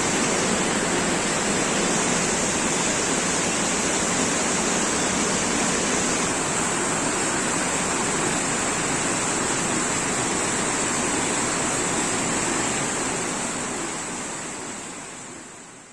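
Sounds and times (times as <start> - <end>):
heavy rain pouring: 0.0 - 15.6.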